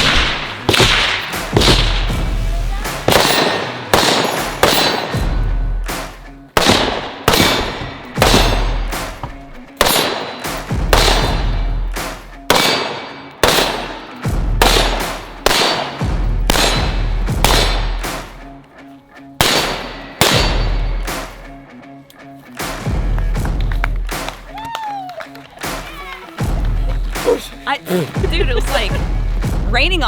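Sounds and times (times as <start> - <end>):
gunshots with ringing tail: 0.0 - 18.4, 19.4 - 21.5
music with heavy bass: 0.0 - 18.6, 25.6 - 30.0.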